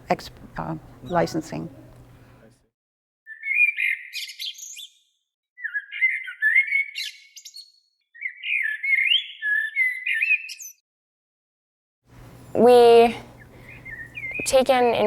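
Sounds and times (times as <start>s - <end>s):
bird chirping and whistling: 3.3s - 10.8s, 13.6s - 14.5s.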